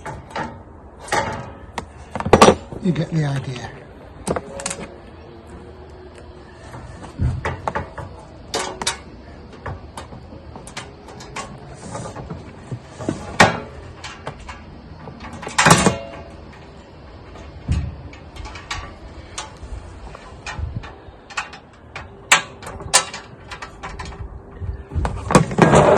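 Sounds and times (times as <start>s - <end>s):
parts rattling: 0.0s - 25.9s
metal parts knocking and clinking: 6.7s - 24.3s.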